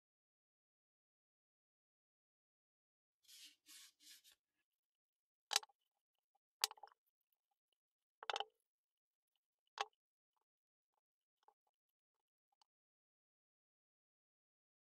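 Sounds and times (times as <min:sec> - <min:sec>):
metal scraping: 0:03.3 - 0:04.4.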